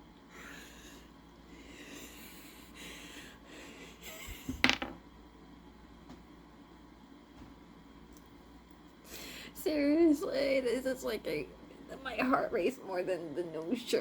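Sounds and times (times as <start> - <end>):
person breathing faintly: 9.0 - 9.6.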